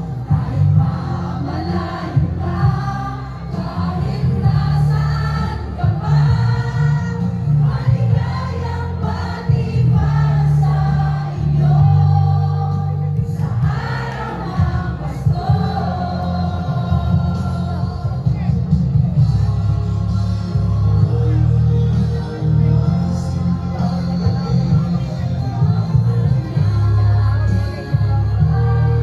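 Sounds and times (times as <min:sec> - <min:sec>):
choir singing: 0:00.0 - 0:18.2
music with steady bass: 0:00.0 - 0:29.0.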